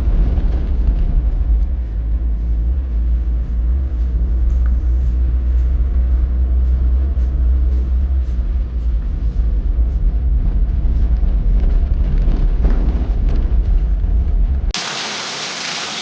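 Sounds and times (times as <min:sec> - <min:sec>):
deep rumble: 0:00.0 - 0:14.8
hiss of rain: 0:14.8 - 0:16.0.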